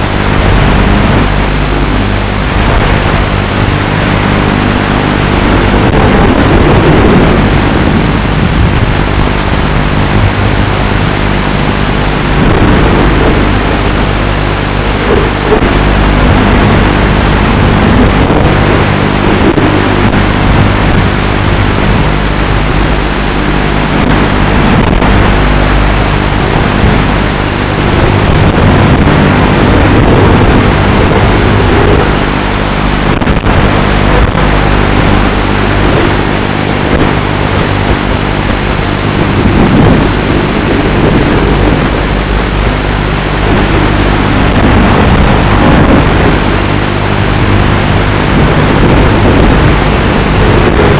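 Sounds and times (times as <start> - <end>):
rushing noise: 0.0 - 50.9.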